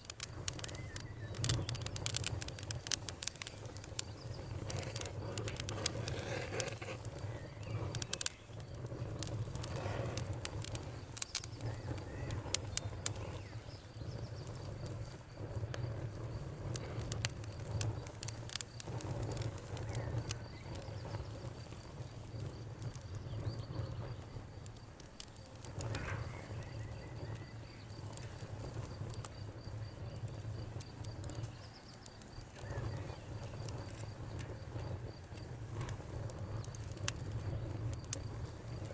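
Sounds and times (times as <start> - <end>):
campfire crackling and popping: 0.0 - 38.9
cricket chirping: 7.0 - 38.9.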